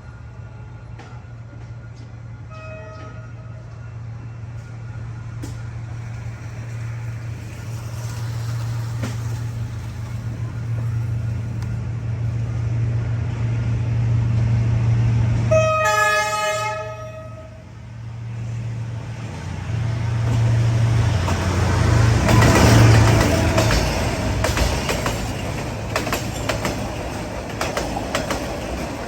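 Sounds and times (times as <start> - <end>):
diesel train engine drone: 0.0 - 29.0
train horn: 2.4 - 4.4, 15.4 - 17.8.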